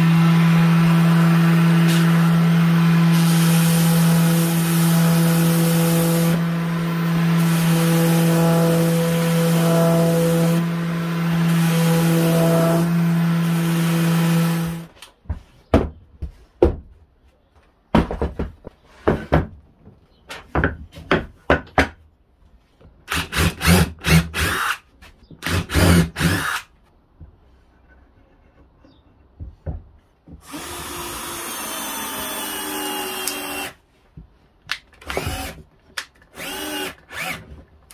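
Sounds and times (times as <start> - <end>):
power drill drilling wood: 0.0 - 14.9, 23.1 - 24.8, 25.4 - 26.7, 30.4 - 33.8, 35.0 - 35.6, 36.3 - 37.5
power tool motor running: 0.0 - 14.9, 30.4 - 33.8, 35.0 - 35.6, 36.3 - 37.4.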